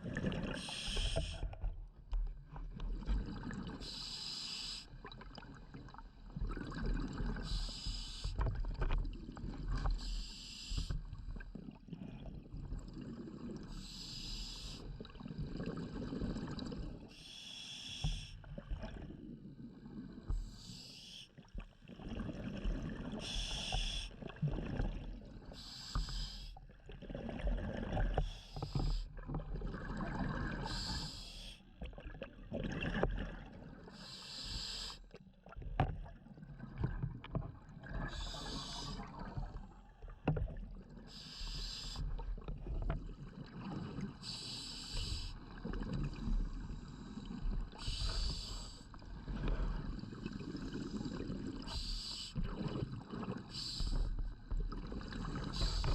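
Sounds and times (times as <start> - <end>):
regulator hiss on inhale: 0.6 - 1.5, 3.8 - 4.9, 7.4 - 8.4, 10.0 - 11.1, 13.7 - 14.9, 17.1 - 18.4, 20.3 - 21.3, 23.2 - 24.2, 25.5 - 26.6, 28.2 - 29.1, 30.6 - 31.6, 33.9 - 35.1, 38.1 - 39.1, 41.1 - 42.2, 44.2 - 45.5, 46.7 - 49.6, 51.2 - 52.5, 53.5 - 54.3, 55.4 - 55.9
bubbling exhale: 37.8 - 39.4, 43.8 - 55.9.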